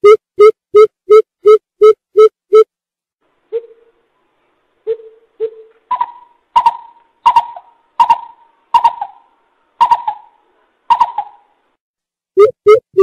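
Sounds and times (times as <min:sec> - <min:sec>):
bird hooting: 0:03.5 - 0:04.0, 0:04.8 - 0:11.6.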